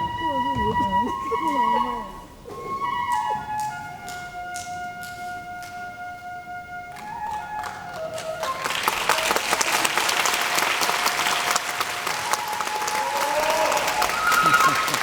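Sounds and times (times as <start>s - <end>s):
traditional music with flute notes: 0.0s - 15.0s
audience applauding: 6.9s - 15.0s.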